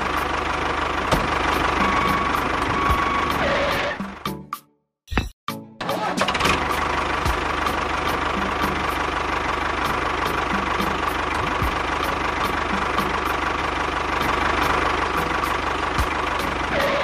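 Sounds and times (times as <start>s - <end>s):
tractor engine chugging: 0.0s - 4.3s, 5.8s - 17.0s.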